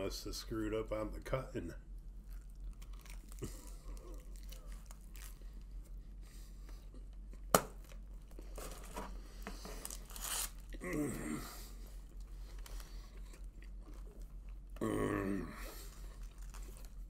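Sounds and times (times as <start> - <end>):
faint chewing: 2.2 - 6.0, 11.9 - 14.9, 15.6 - 17.0.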